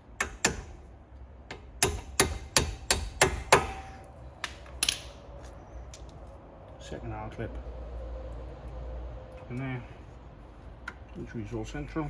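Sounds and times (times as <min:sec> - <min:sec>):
hammer tapping metal: 0:00.2 - 0:00.8, 0:01.5 - 0:05.1.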